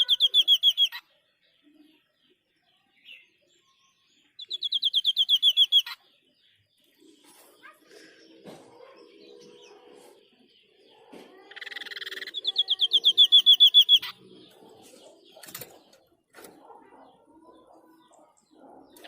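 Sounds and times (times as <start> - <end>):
bird calling with buzzy rattle: 15.2 - 16.9.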